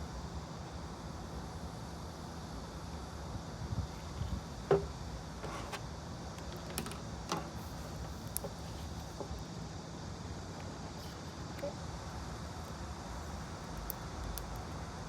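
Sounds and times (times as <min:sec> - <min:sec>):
low background hum: 0:00.0 - 0:15.0
small clicks and knocks: 0:06.3 - 0:07.6.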